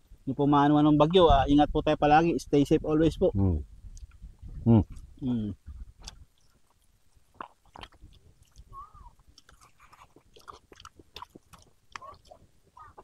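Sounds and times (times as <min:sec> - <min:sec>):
chewing with wet mouth clicks: 0:03.9 - 0:05.2, 0:06.0 - 0:13.0.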